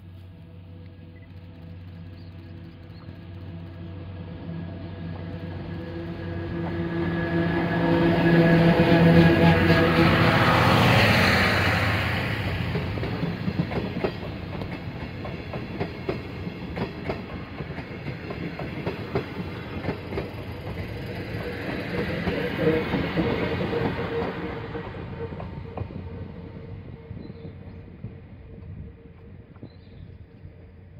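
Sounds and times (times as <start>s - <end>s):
electric locomotive passing: 0.0s - 30.9s
train wheels clacking over rail joints: 11.1s - 26.2s.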